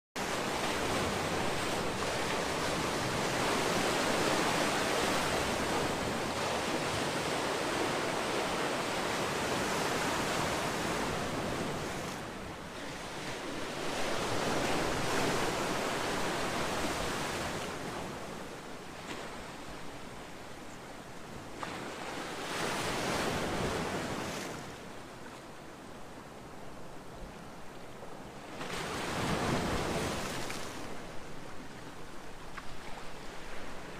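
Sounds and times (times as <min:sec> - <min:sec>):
ocean waves breaking: 0:00.2 - 0:20.1, 0:28.5 - 0:33.9.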